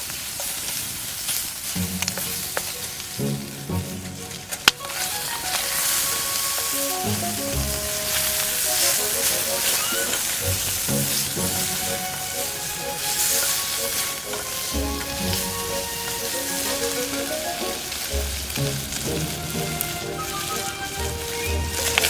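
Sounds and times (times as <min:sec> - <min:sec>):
food sizzling in a frying pan: 0:04.8 - 0:22.0.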